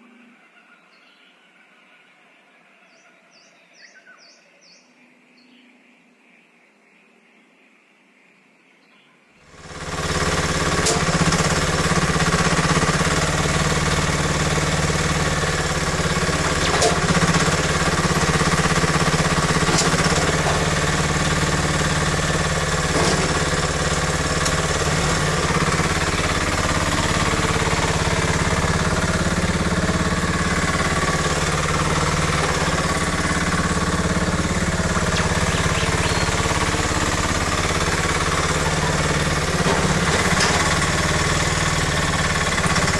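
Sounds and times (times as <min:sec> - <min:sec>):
excavator engine knocking: 0:09.5 - 0:42.9.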